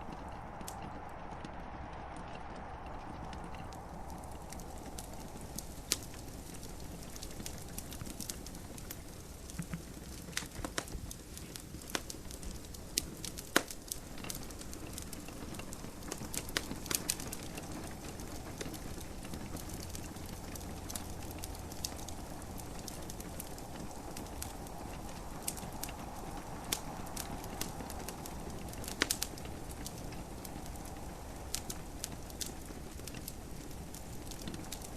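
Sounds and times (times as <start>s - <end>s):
gentle rain hiss: 0.0s - 34.9s
wood fire crackling and popping: 0.0s - 34.9s.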